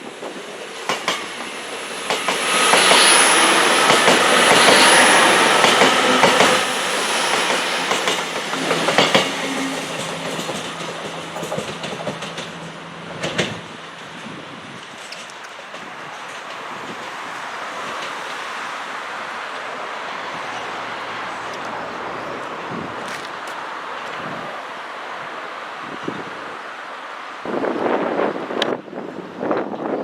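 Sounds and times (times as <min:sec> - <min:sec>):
train passing: 0:00.0 - 0:30.0
wheels clicking over rail joints: 0:07.3 - 0:18.4.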